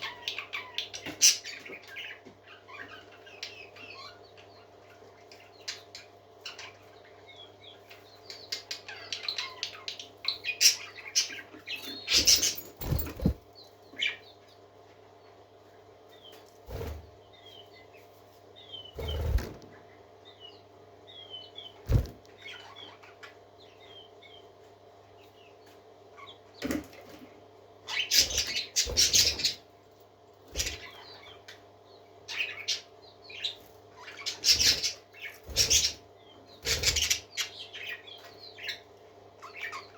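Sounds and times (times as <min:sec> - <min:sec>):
parakeets chirping: 0:00.0 - 0:14.4, 0:18.6 - 0:24.4, 0:27.8 - 0:29.6, 0:30.5 - 0:31.5, 0:32.2 - 0:39.9.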